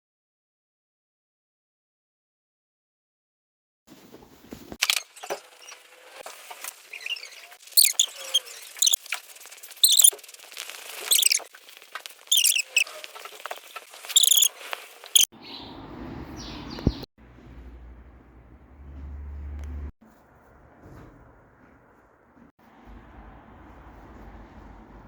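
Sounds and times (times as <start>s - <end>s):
high-pitched chirping: 6.9s - 9.0s, 9.8s - 10.1s, 11.1s - 11.5s, 12.3s - 12.9s, 14.0s - 14.5s, 15.1s - 15.6s.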